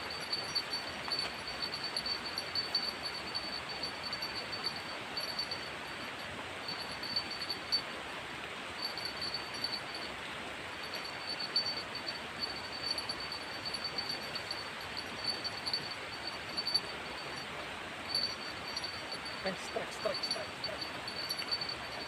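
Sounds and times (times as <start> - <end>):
steady rain hiss: 0.0 - 22.0
high pulsing chirring: 10.9 - 22.0.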